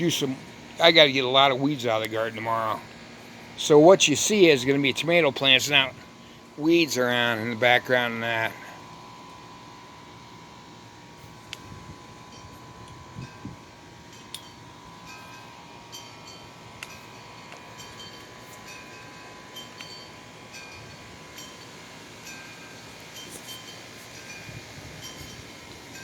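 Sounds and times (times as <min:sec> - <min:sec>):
steady hiss: 0:00.0 - 0:26.0
wind chimes ringing: 0:12.3 - 0:26.0.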